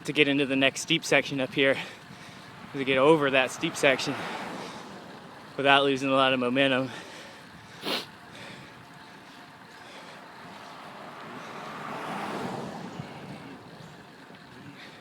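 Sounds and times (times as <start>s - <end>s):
bicycle road noise: 0.0s - 15.0s
rushing wind: 1.4s - 5.6s, 10.4s - 15.0s.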